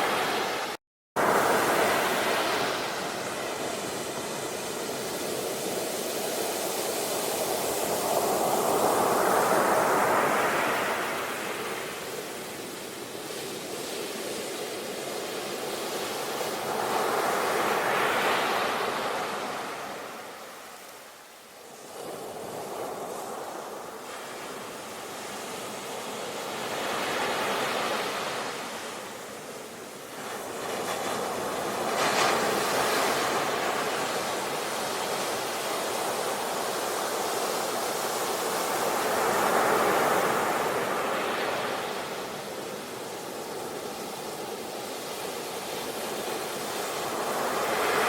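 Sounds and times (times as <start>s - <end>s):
ocean waves breaking: 0.0s - 12.7s.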